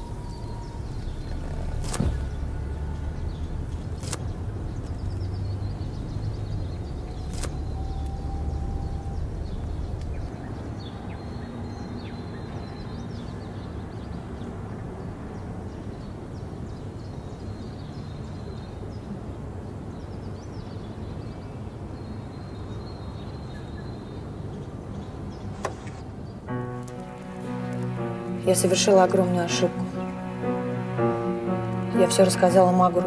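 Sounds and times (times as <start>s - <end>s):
low rumble: 0.0s - 10.7s
outdoor ambience: 0.0s - 33.0s.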